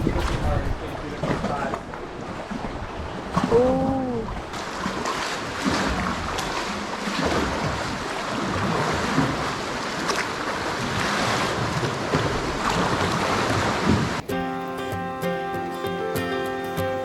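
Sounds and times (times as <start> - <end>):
wind on microphone: 0.0 - 9.8
water lapping against a kayak: 0.0 - 14.3
background music: 14.2 - 17.0.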